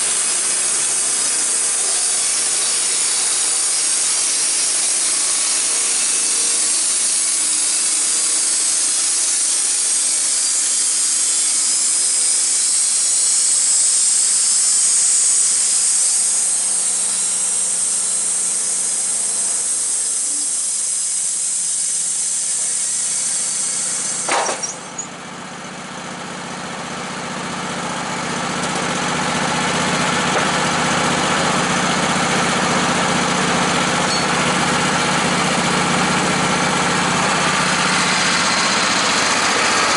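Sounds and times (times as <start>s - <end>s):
engine running: 0.0s - 39.9s
power saw cutting wood: 0.0s - 39.9s
sharp clunk: 24.2s - 25.1s.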